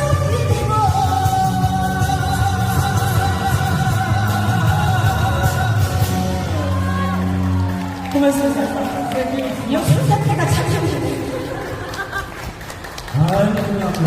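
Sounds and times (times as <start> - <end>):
backing music with steady beat: 0.0 - 7.7.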